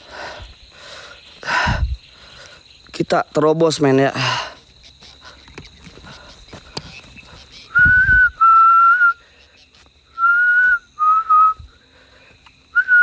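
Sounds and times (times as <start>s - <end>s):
high insect tone: 0.0s - 13.0s
person whistling: 7.7s - 9.2s, 10.2s - 11.6s, 12.8s - 13.0s.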